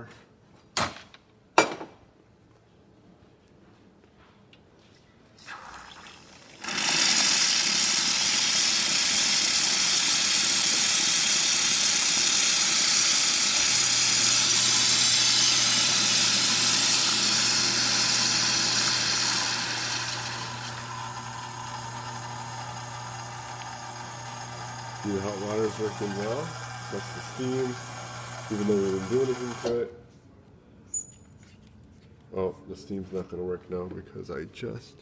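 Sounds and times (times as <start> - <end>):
hot water hissing and splashing: 5.4 - 29.7.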